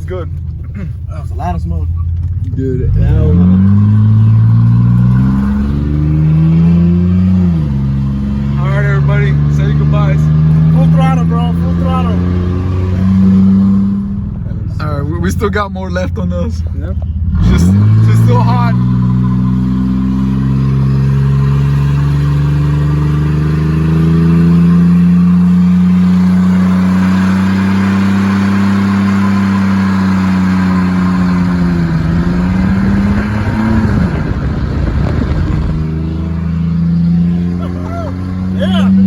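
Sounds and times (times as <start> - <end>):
truck engine at high revs: 2.2 - 16.2, 17.1 - 39.0.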